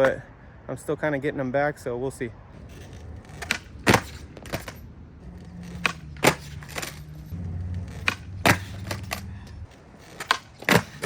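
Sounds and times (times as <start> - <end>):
skateboard rolling: 2.6 - 11.0
skateboard tail popping: 3.2 - 4.7
skateboard slapping down: 3.4 - 4.6, 7.9 - 9.0, 10.2 - 11.0.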